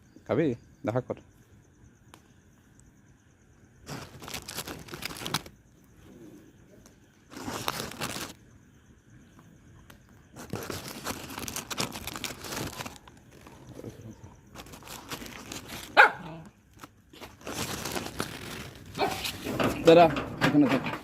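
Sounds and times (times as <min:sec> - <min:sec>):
rustling and scuffling: 0:03.8 - 0:05.5, 0:07.2 - 0:08.4, 0:10.2 - 0:21.0
dog barking: 0:16.0 - 0:16.4, 0:19.0 - 0:19.3.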